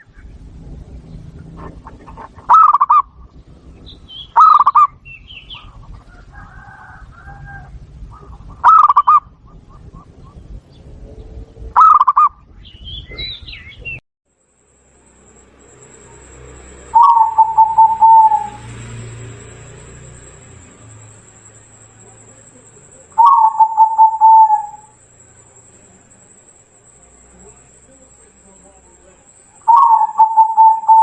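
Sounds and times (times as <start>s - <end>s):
small birds chirping: 0.0s - 6.3s, 7.7s - 14.0s, 15.4s - 31.0s
dove cooing: 1.2s - 3.3s, 3.9s - 10.4s, 11.7s - 12.4s, 15.6s - 26.2s, 27.3s - 31.0s.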